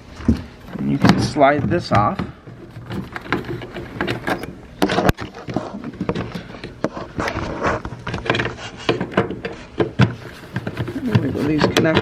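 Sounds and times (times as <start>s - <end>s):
plastic and metal parts clattering: 0.2s - 12.0s.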